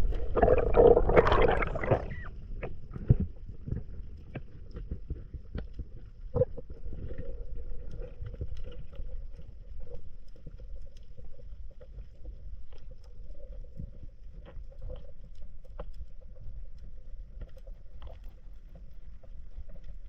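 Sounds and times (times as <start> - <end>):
low rumble: 0.0 - 2.3
water sloshing: 0.0 - 2.3.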